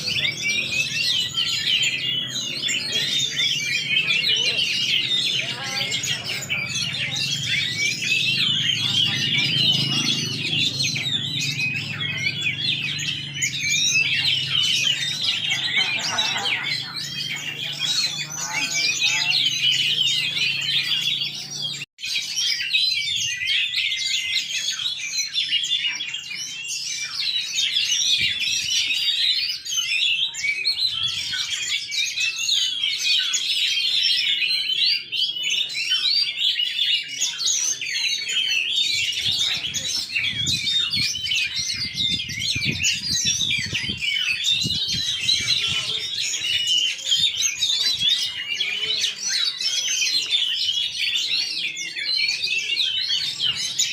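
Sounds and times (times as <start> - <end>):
songbirds chorus: 0.0 - 53.9.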